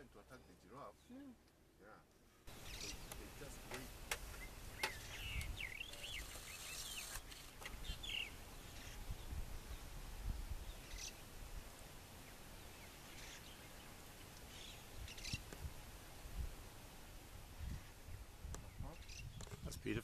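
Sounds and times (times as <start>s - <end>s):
high bird chirps: 2.5s - 3.3s, 4.3s - 9.3s, 10.7s - 11.3s, 14.5s - 15.5s.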